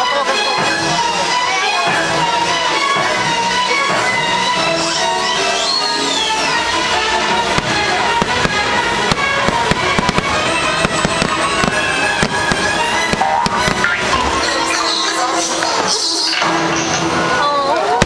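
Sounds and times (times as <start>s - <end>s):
orchestral music: 0.0s - 18.0s
fireworks banging: 0.7s - 18.0s.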